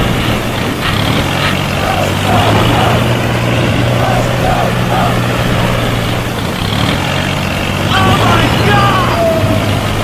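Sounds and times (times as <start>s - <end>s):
steady engine hum: 0.0s - 10.0s
faint voices: 1.5s - 6.5s.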